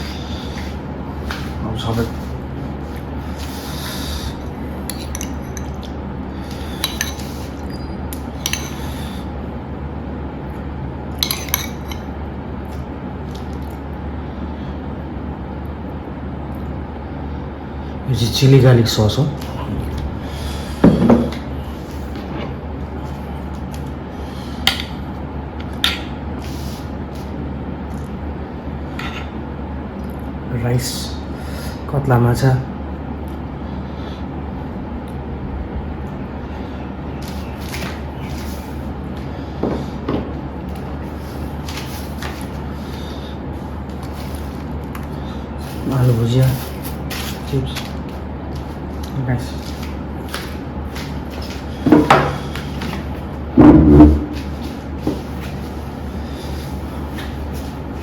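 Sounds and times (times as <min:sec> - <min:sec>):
low background hum: 0:00.0 - 0:58.0
cutlery and dishes clinking: 0:04.9 - 0:05.8, 0:06.8 - 0:07.3, 0:08.4 - 0:08.8, 0:11.2 - 0:12.0.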